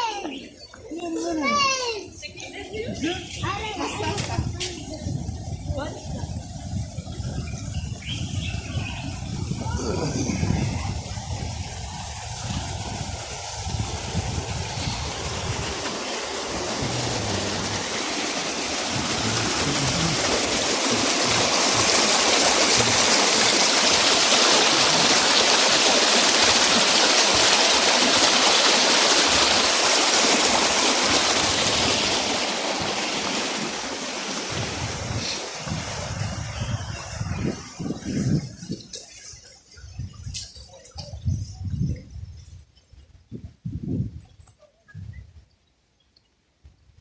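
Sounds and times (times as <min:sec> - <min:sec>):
stream water rushing: 0:06.7 - 0:41.0.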